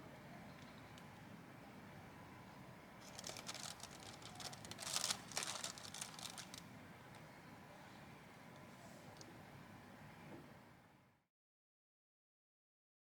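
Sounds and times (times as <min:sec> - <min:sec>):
rustling and crinkling: 0:03.0 - 0:06.7.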